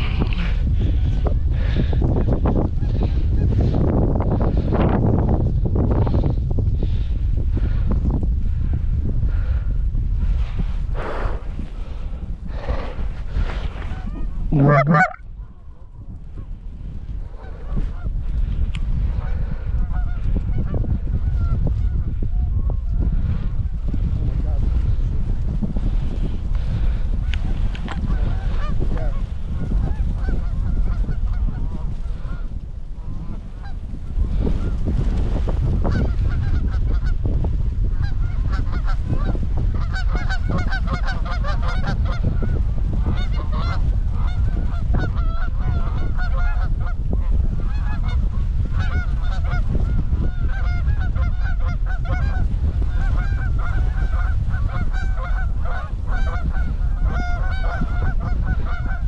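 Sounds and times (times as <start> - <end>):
wind buffeting microphone: 0.0 - 59.0
geese honking and clucking: 13.8 - 15.2, 19.2 - 22.6, 27.9 - 34.8, 35.8 - 37.2, 37.9 - 47.0, 47.6 - 59.0.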